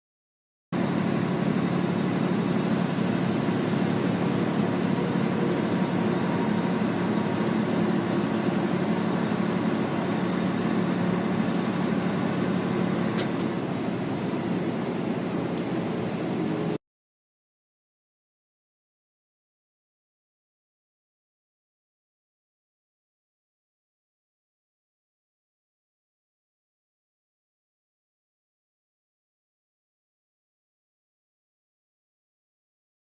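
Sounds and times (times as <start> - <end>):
vehicle road and engine noise: 0.8 - 16.8.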